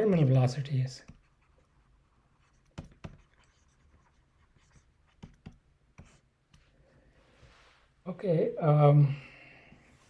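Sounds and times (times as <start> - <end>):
pen tapping and scratching: 1.0 - 6.7.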